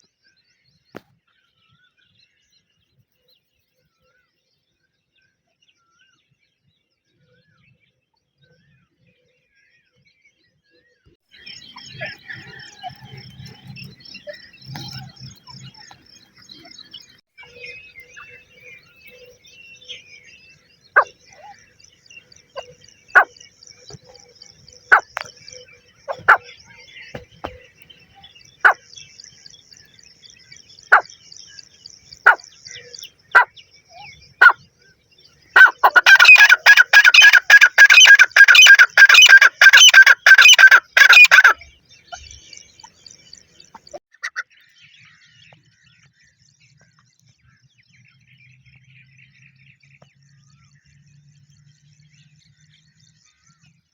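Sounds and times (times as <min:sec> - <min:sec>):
faint high chirping: 0:11.4 - 0:44.0
francolin calling: 0:21.0 - 0:29.5, 0:30.9 - 0:34.6, 0:35.6 - 0:44.0.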